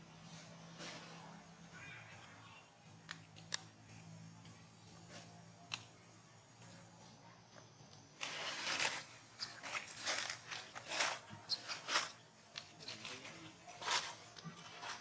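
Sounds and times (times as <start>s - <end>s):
rustling and crunching: 8.2s - 15.0s.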